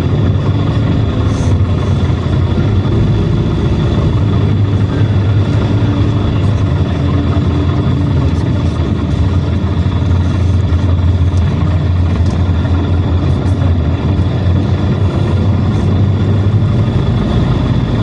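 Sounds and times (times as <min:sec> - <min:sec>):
bus engine drone: 0:00.0 - 0:18.0
road and drivetrain noise: 0:00.0 - 0:18.0.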